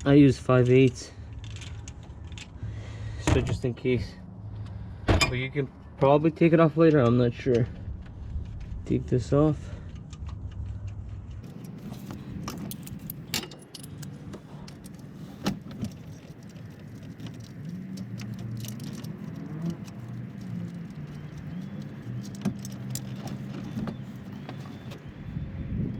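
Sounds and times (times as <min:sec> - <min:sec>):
metal hand tools clinking: 0:11.5 - 0:15.4, 0:16.0 - 0:23.8.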